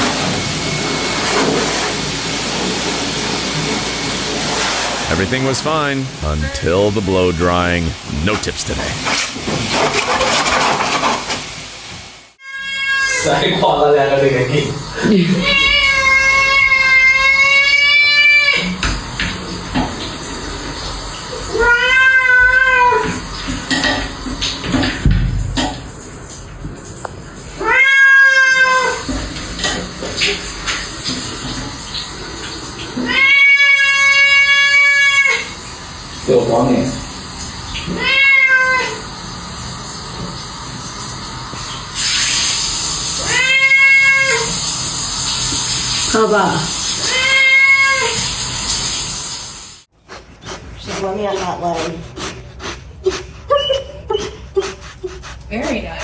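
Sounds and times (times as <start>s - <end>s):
steady hiss: 5.0s - 9.4s
pet crying high-pitched: 12.4s - 13.3s, 15.2s - 18.7s, 21.5s - 23.1s, 27.6s - 29.0s, 33.0s - 35.5s, 38.0s - 39.0s, 43.2s - 44.6s, 47.1s - 48.2s
cat meowing: 12.4s - 13.4s, 15.4s - 18.7s, 21.5s - 23.2s, 27.6s - 29.0s, 33.0s - 35.5s, 37.9s - 39.0s, 43.2s - 44.6s, 47.0s - 48.2s.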